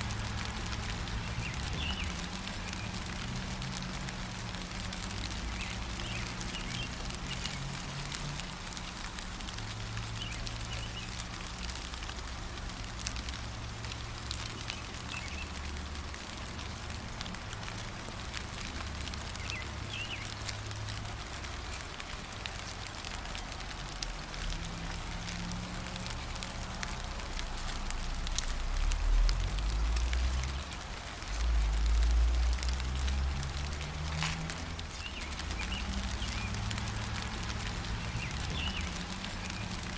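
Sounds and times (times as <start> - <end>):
gentle rain falling: 0.0 - 39.9
bird chirping: 1.2 - 3.0, 10.2 - 11.2, 14.5 - 15.6, 19.4 - 20.4, 34.9 - 36.6, 38.0 - 39.8.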